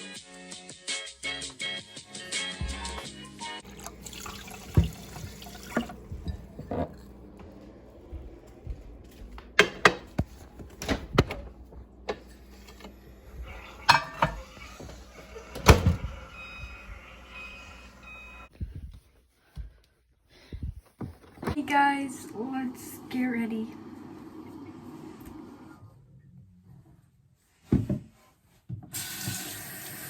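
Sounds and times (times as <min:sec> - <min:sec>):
running water: 0:03.6 - 0:07.2
dishes and utensils clinking: 0:13.5 - 0:14.8.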